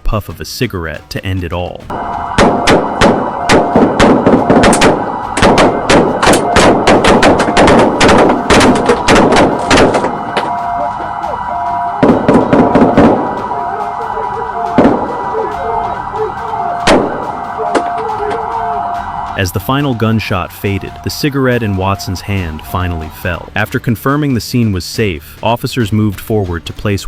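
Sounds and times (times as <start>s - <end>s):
police siren: 1.9s - 23.5s.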